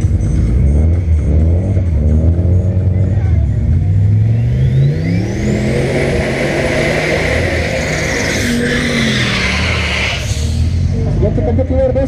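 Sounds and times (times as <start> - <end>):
drag car engines accelerating: 0.0 - 12.0
turbo whine: 2.7 - 11.4.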